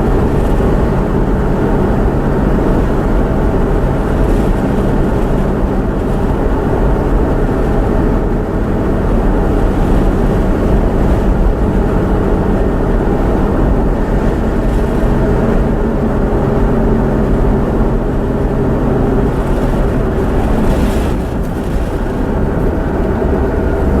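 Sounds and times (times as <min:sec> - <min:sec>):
car engine hum: 0:00.0 - 0:24.0.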